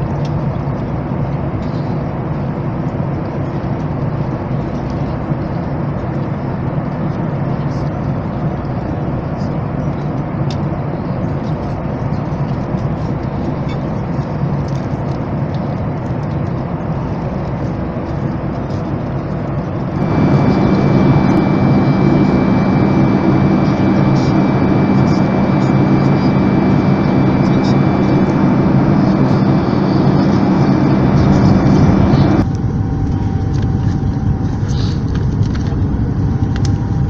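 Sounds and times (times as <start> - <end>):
jet cabin noise: 0.0 - 37.0
jet engines spooling up: 11.0 - 37.0.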